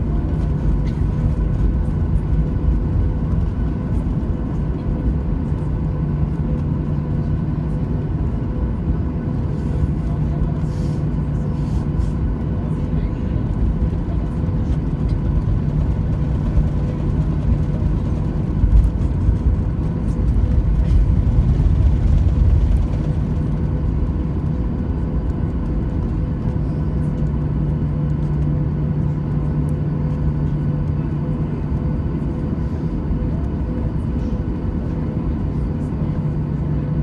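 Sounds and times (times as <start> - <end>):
jet engine drone in cabin: 0.0 - 37.0
low rumble: 12.4 - 30.3.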